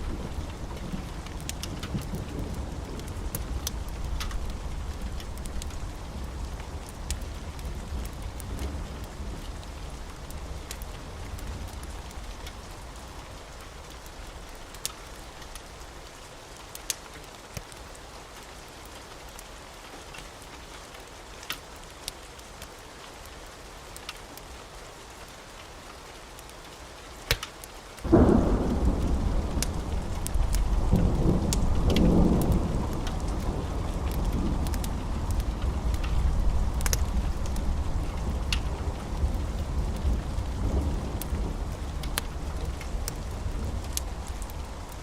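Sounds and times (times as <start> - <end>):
thunder rumbling: 0.0 - 15.4, 28.1 - 45.0
steady rain: 0.0 - 45.0
loud thunderclap: 28.1 - 44.7.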